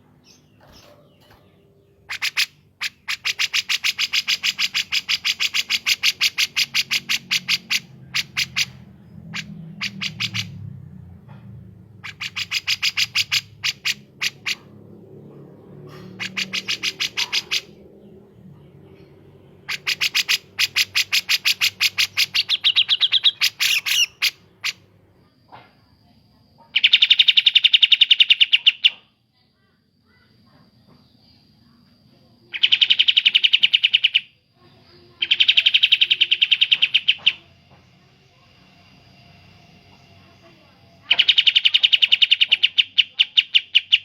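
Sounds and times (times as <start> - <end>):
harsh bird chattering: 0.0 - 10.6, 12.0 - 14.7, 15.9 - 18.1, 19.6 - 24.8, 32.5 - 37.6, 40.3 - 44.0.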